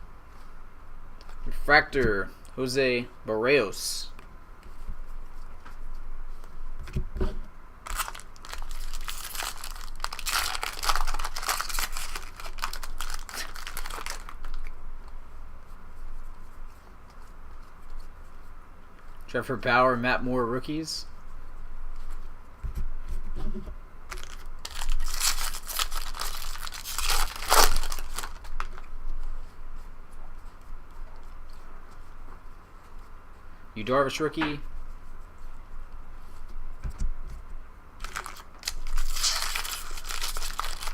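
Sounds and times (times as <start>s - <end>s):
wrapper tearing and crinkling: 7.8s - 14.7s, 24.1s - 28.9s, 38.0s - 40.9s.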